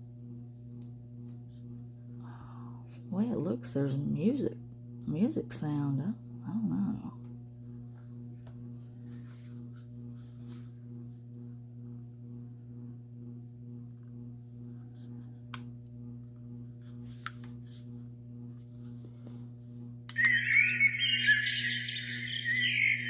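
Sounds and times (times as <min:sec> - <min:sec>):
low pulsing hum: 0:00.0 - 0:23.0
high warbling chirping: 0:20.2 - 0:23.0.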